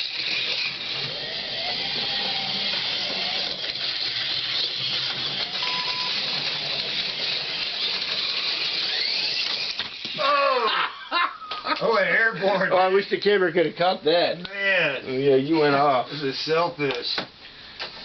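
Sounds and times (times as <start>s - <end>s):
slot car motors whirring: 0.0s - 10.3s
short beep: 5.6s - 6.2s.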